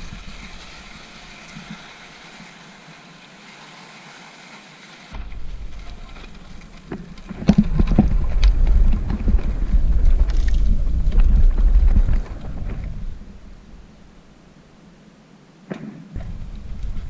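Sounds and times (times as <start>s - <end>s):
bicycle rattling on dirt road: 0.0s - 14.3s, 16.2s - 17.0s
wind buffeting microphone: 5.2s - 14.3s, 16.2s - 17.0s.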